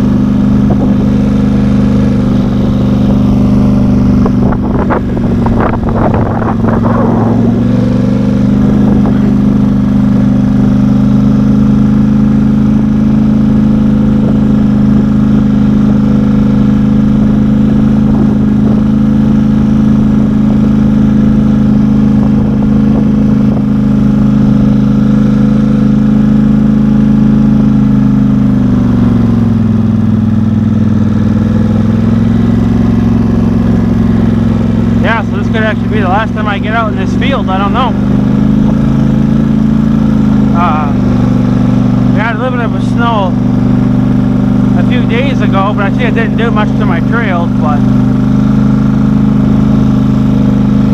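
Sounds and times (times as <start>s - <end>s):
off-road vehicle engine running: 0.0s - 50.9s.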